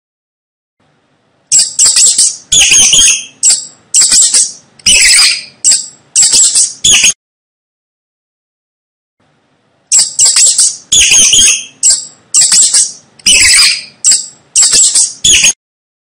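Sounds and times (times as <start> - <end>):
mouse squeaking: 1.5 - 7.2, 9.9 - 15.6.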